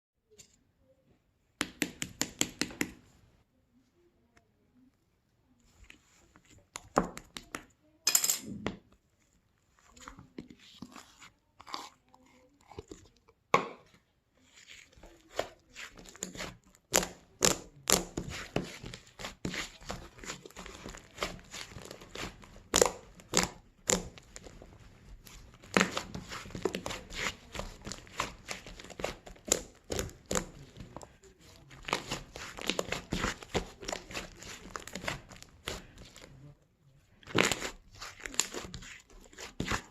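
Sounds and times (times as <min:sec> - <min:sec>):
slime squished by hand: 0:14.5 - 0:36.4, 0:37.2 - 0:39.9.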